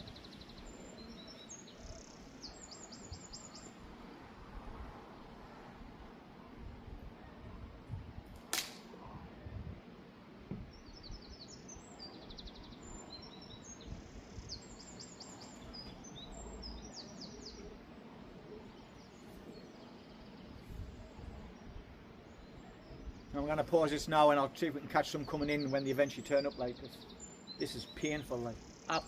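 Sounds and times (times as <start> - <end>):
wind rumble on microphone: 3.0 - 8.4, 9.0 - 11.4, 12.4 - 16.9, 20.3 - 23.4
sharp click: 8.4 - 8.9
small bird chirping: 10.7 - 17.7.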